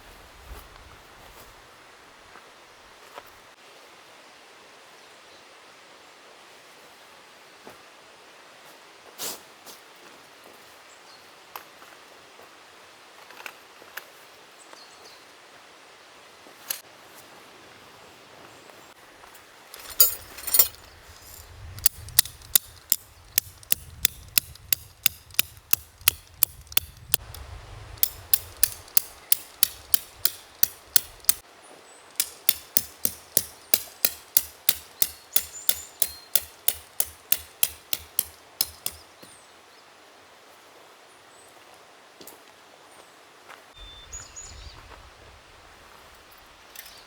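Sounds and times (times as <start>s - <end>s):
hammer striking tent pegs: 21.8s - 27.3s, 28.0s - 31.4s, 32.1s - 39.4s.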